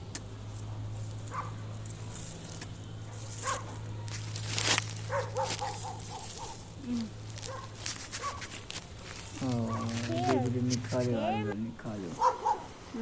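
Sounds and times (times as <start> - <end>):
steady low hum: 0.0 - 13.0
rustling scrape: 1.8 - 11.1.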